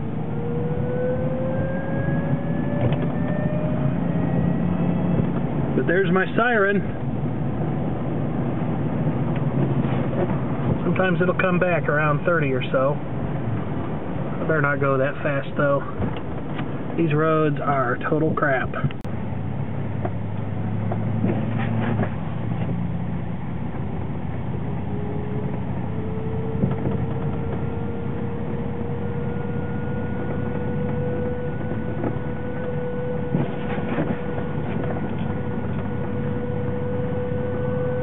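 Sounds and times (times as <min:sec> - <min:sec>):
siren-like driveline whine: 0:00.0 - 0:08.8, 0:24.5 - 0:38.0
road rumble: 0:00.0 - 0:38.0
light rattles in car cab: 0:05.1 - 0:19.0.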